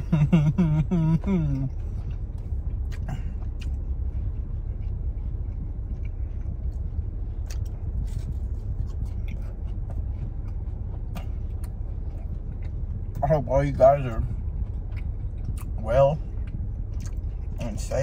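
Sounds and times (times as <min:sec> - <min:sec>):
low car cabin hum: 0:00.0 - 0:18.0
chewing food: 0:01.3 - 0:18.0
wet mouth smacks and clicks: 0:07.4 - 0:07.7, 0:16.4 - 0:17.3.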